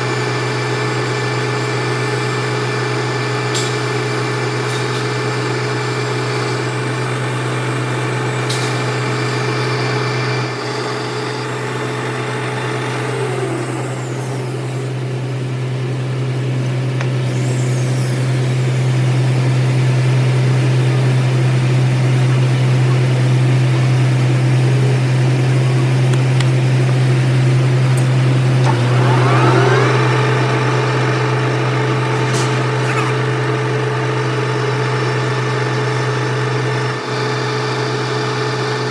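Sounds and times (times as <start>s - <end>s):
machine motor humming: 6.7s - 37.0s.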